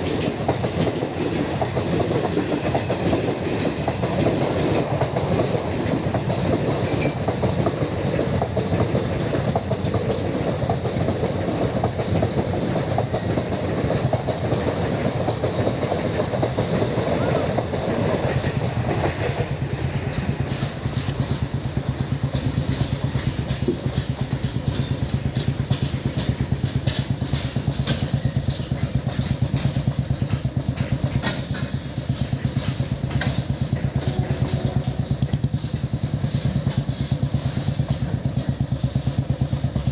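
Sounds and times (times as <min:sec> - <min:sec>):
coaches rattling over rail joints: 0:00.0 - 0:39.9
train passing at speed: 0:00.0 - 0:39.9
high wheel squeal: 0:09.8 - 0:39.7.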